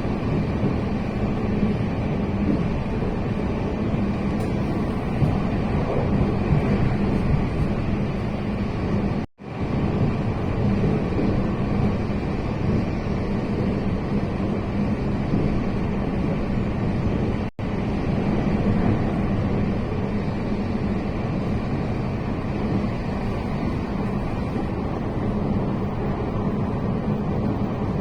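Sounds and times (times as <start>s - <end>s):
moving train rumbling: 0.0s - 28.0s.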